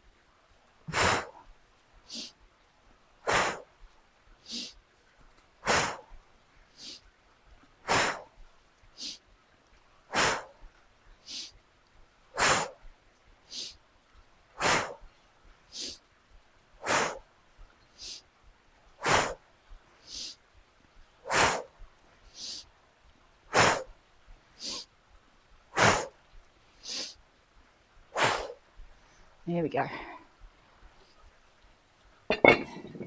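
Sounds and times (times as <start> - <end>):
woman breathing heavily: 0.9 - 1.4, 3.3 - 3.6, 5.6 - 6.1, 7.9 - 8.3, 14.6 - 15.0, 19.0 - 19.4, 21.3 - 21.7, 24.6 - 24.8, 26.8 - 27.2, 28.2 - 30.4.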